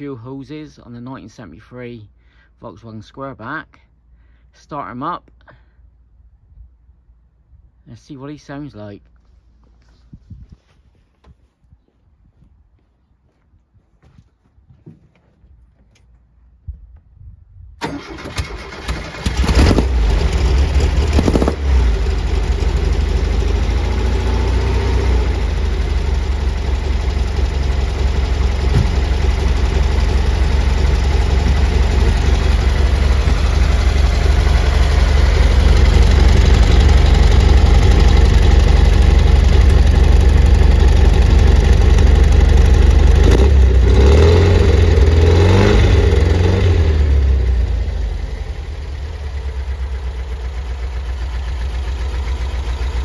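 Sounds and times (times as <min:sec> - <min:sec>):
car engine starting and idling: 0:17.8 - 0:53.0.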